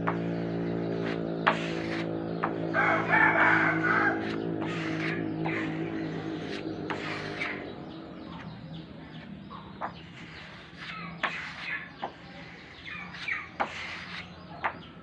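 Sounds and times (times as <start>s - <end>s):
chickens clucking and chirping: 0.0s - 15.0s
rooster crowing: 2.7s - 4.9s.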